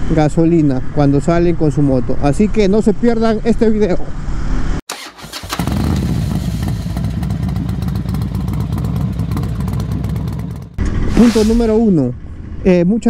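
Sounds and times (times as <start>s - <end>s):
motorcycle engine starting and running: 4.9s - 11.3s.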